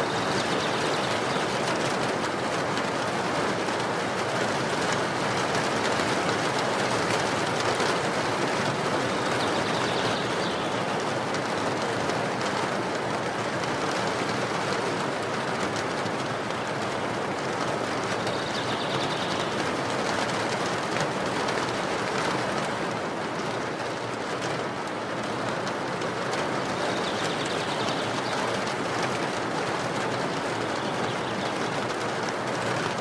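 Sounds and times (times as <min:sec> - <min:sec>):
steady rainfall: 0:00.0 - 0:33.0.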